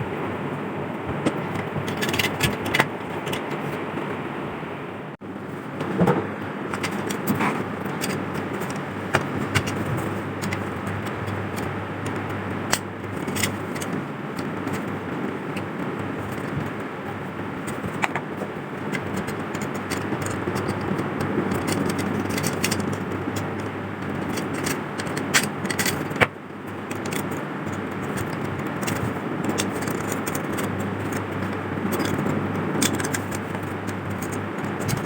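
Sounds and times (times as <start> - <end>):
steady rushing noise: 0.0 - 35.0
metal parts clinking and scraping: 1.2 - 3.7, 6.7 - 35.0.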